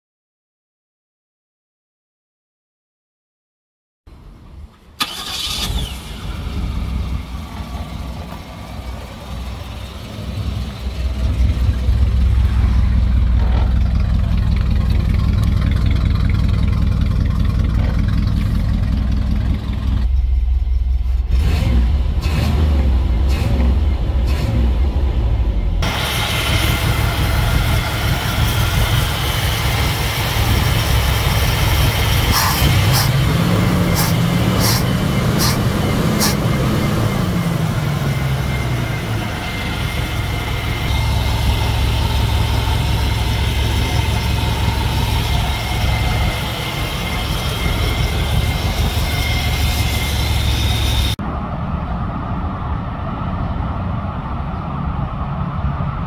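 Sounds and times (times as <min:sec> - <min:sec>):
car engine running: 0:05.0 - 0:51.2
hiss: 0:32.2 - 0:33.2, 0:33.9 - 0:36.4.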